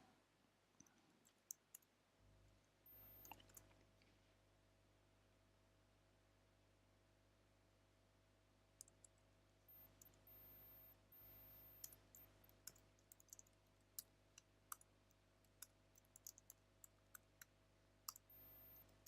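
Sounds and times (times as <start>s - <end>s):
faint high-pitched whine: 0.0s - 19.0s
computer keys typing: 2.8s - 3.8s, 8.8s - 19.0s.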